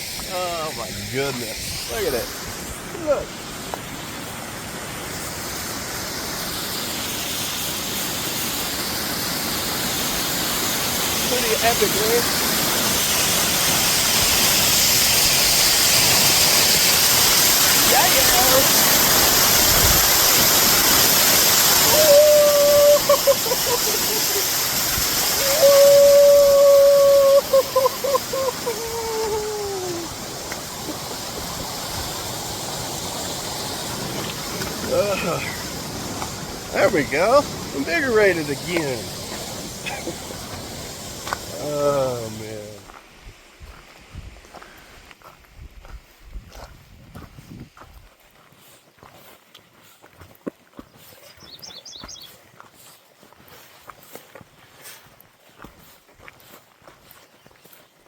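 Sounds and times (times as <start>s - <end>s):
waterfall roaring: 0.0s - 42.9s
man's wavering cry: 21.8s - 24.4s, 25.4s - 30.1s.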